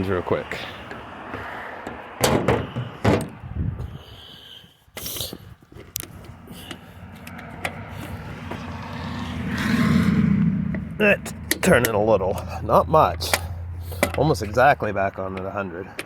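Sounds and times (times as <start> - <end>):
steady low rumble: 2.9 - 4.2, 6.0 - 15.2.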